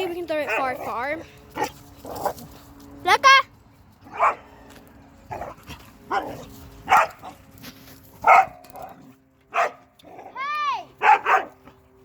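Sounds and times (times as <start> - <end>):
dog barking: 4.1 - 4.5, 5.3 - 7.3, 8.2 - 8.9, 9.5 - 9.8, 11.0 - 11.6.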